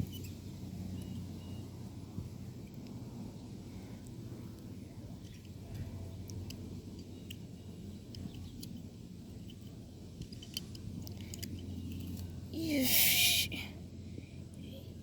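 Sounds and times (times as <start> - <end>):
low steady rumble: 0.0 - 15.0
plastic toys clicking and scraping: 10.2 - 12.3.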